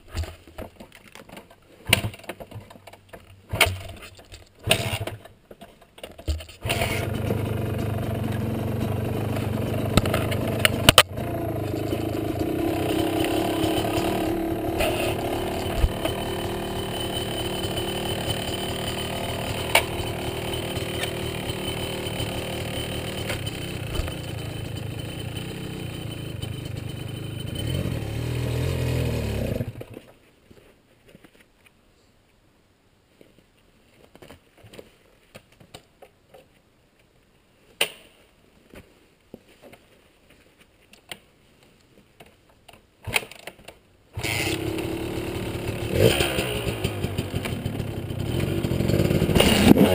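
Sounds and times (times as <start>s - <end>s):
dirt bike engine running: 6.6s - 29.8s, 44.2s - 49.9s
scattered clicks and knocks: 9.3s - 27.6s.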